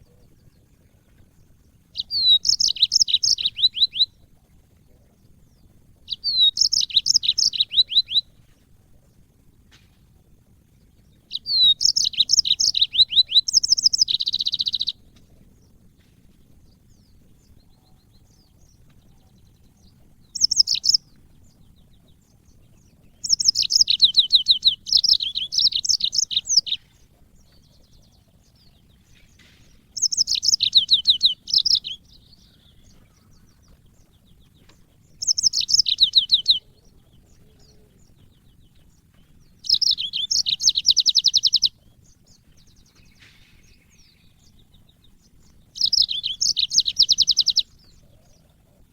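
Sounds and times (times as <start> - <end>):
canary trilling: 1.9 - 4.2, 6.0 - 8.3, 11.2 - 15.0, 20.0 - 21.6, 23.1 - 27.9, 29.3 - 34.2, 35.0 - 38.0, 39.0 - 42.3, 43.6 - 48.4.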